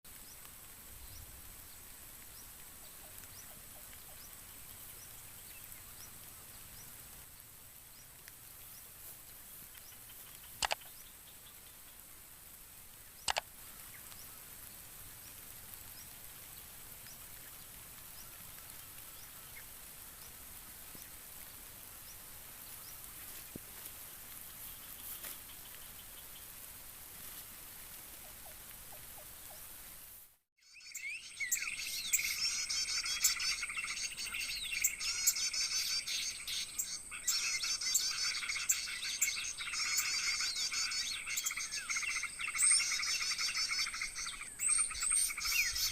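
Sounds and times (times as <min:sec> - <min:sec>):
steady high hiss: 0:00.1 - 0:45.9
small bird chirping: 0:07.9 - 0:12.0, 0:13.2 - 0:14.4, 0:30.6 - 0:45.9.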